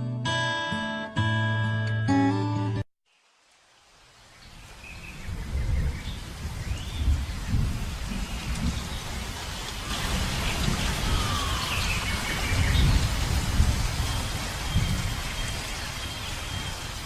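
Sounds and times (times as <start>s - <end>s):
bird calls: 4.3s - 13.2s
wind rumbling on microphone: 4.4s - 17.0s.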